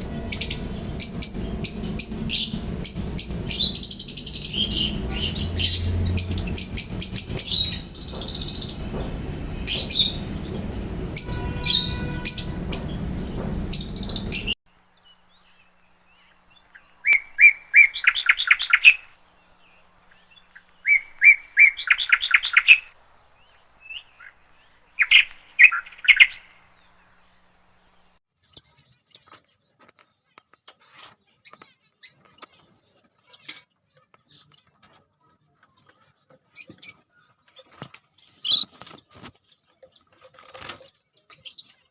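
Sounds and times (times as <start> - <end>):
bird giving rapid repeated chirps: 0.0 - 10.4, 13.7 - 14.6
small parrots chirping and chattering: 0.0 - 12.7, 13.7 - 14.6, 28.4 - 41.9
low hum: 0.0 - 17.0.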